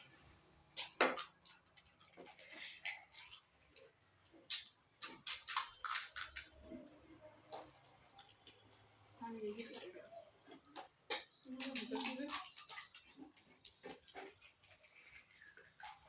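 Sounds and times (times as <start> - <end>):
crisp food crunching: 0.0 - 6.8, 11.6 - 16.0.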